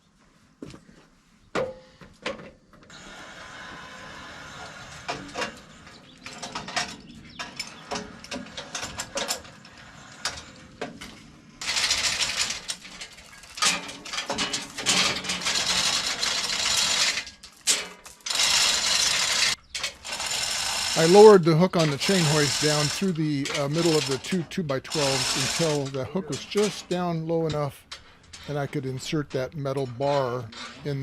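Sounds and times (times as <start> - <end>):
hoist chain rattling: 4.5 - 31.0
ratchet clicking: 11.6 - 17.4, 18.1 - 24.3, 24.9 - 26.9.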